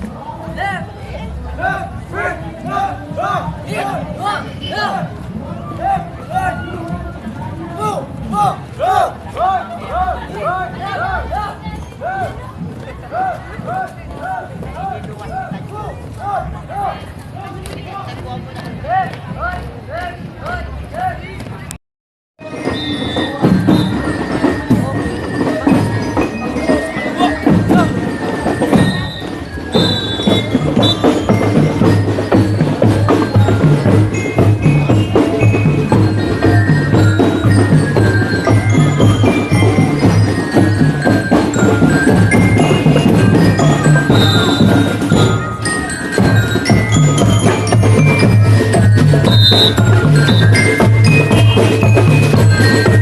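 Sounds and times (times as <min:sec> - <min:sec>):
marching drums: 0:00.0 - 0:21.6, 0:22.4 - 0:53.0
bell lyre notes: 0:22.4 - 0:53.0.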